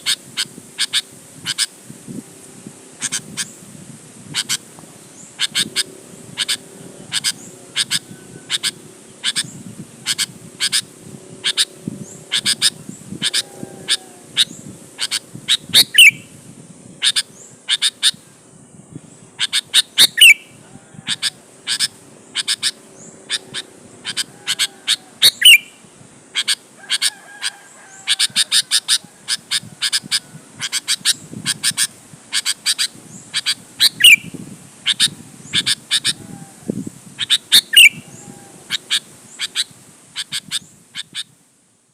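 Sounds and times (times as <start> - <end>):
bulbul calling sharp notes: 4.3 - 16.3, 19.4 - 25.8.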